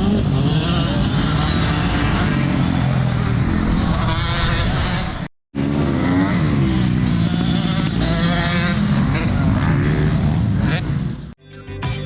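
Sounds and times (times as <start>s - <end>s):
motorcycle engines revving: 0.0s - 11.4s.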